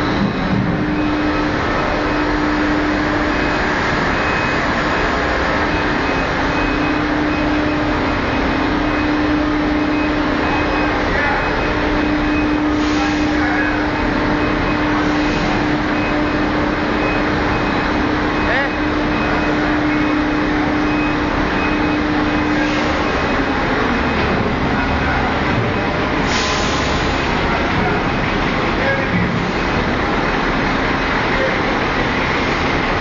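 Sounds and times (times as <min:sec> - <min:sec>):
truck diesel engine droning: 0:00.0 - 0:33.0.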